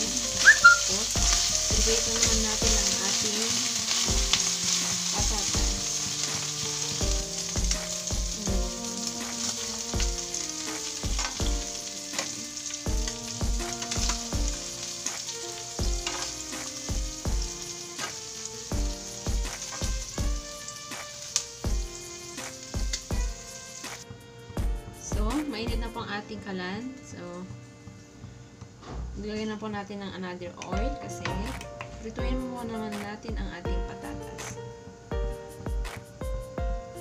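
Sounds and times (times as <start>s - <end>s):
background music with beat: 0.0s - 3.4s, 4.0s - 26.0s, 30.8s - 37.0s
spoon stirring in pan: 0.0s - 20.4s
livers sizzling in oil: 0.0s - 26.2s.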